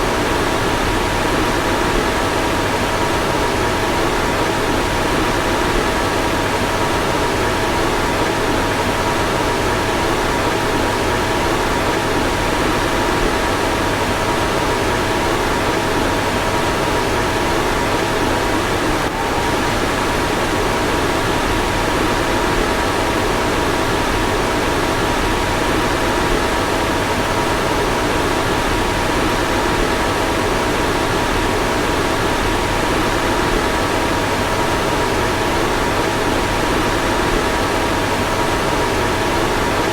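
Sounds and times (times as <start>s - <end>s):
fan rushing air: 16.5s - 39.9s.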